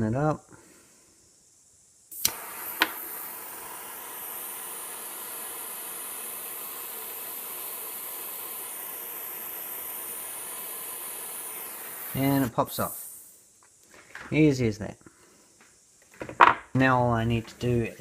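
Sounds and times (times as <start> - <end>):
blowtorch hissing: 2.1 - 13.6.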